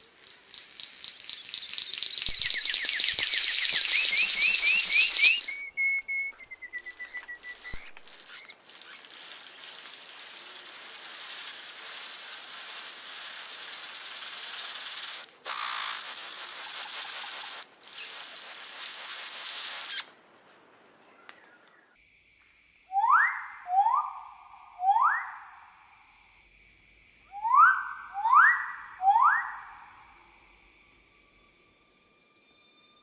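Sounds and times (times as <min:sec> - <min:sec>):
bird chirps and whistle: 0:00.2 - 0:09.2, 0:13.3 - 0:20.1, 0:22.9 - 0:25.6, 0:27.3 - 0:30.1
hissing buzz: 0:07.7 - 0:20.0.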